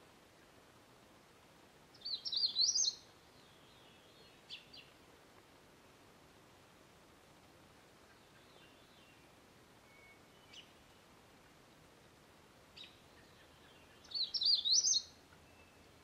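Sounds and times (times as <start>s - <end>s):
songbird warbling phrase: 2.0s - 4.9s, 12.8s - 15.7s
songbird chips: 14.1s - 15.1s.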